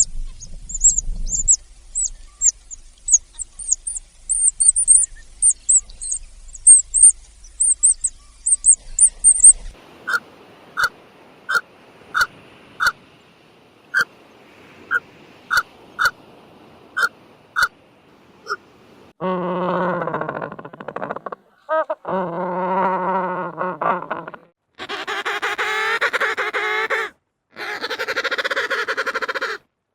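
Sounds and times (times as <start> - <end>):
small birds chirping high: 0.0 - 9.8.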